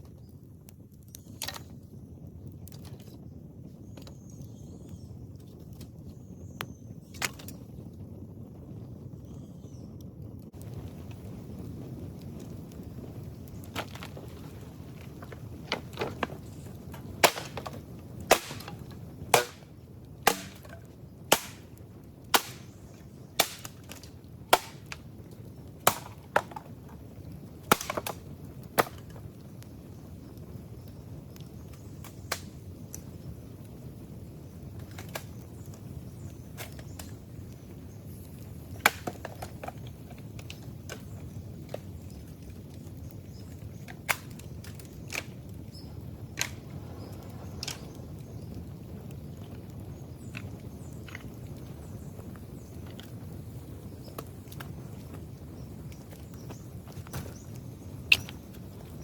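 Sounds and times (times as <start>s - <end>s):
bamboo cracking: 1.1s - 1.8s, 7.1s - 7.6s, 13.5s - 27.0s, 27.6s - 29.2s, 34.8s - 37.6s, 38.7s - 45.5s, 46.3s - 48.0s, 49.3s - 53.2s, 55.9s - 59.0s.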